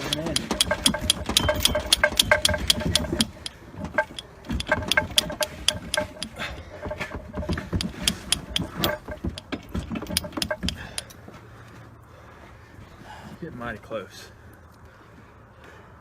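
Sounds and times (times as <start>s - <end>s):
metal chain clinking: 0.0s - 11.1s.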